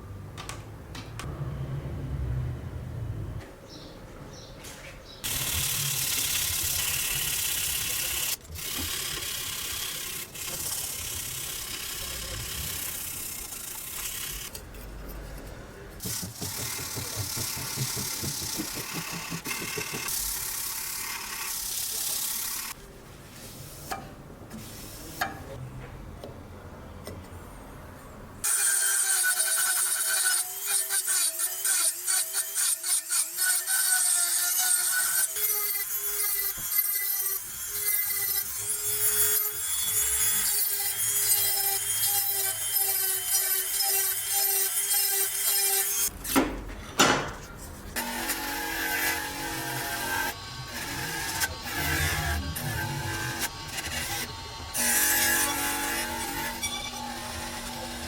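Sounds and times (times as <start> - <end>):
hand sawing wood: 16.0 - 22.8.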